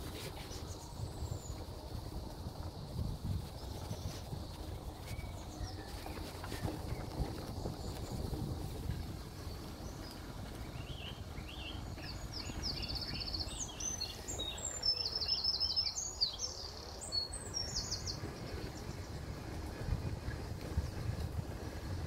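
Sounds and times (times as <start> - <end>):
songbird singing with trills: 3.6 - 8.3, 9.4 - 19.1.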